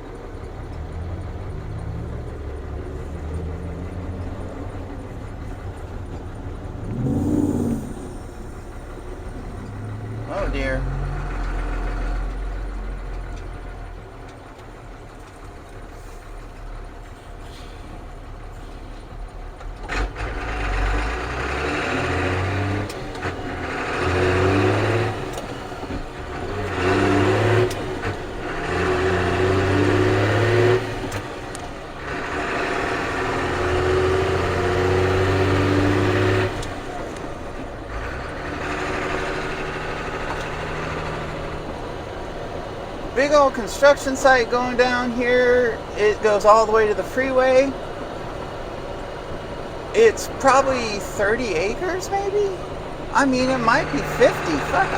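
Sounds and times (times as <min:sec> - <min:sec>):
diesel engine idling and accelerating: 0:00.0 - 0:54.9.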